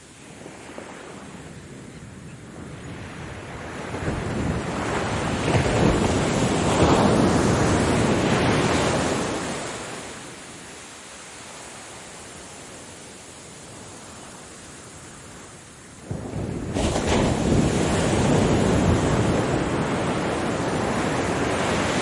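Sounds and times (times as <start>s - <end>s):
ocean wave breaking: 3.4s - 10.4s, 16.1s - 22.0s.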